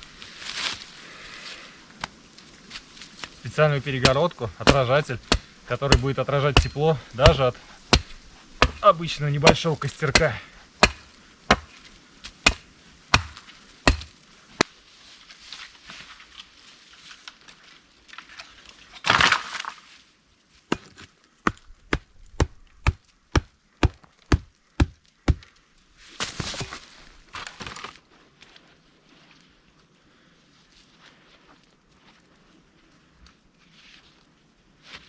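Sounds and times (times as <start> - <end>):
rough noises: 2.4 - 14.7
chopping blows on wood: 4.0 - 14.1.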